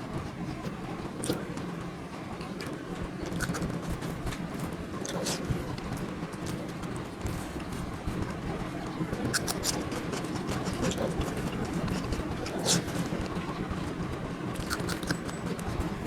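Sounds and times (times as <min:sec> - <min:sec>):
background murmur and hum: 0:00.0 - 0:16.0
eating clicks and taps: 0:14.6 - 0:15.2.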